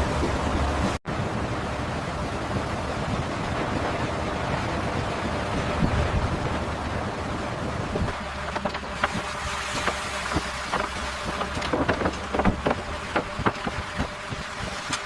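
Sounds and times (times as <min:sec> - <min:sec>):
machinery low rumble: 0:00.0 - 0:15.0
sharp knocks and clicks: 0:08.5 - 0:14.2.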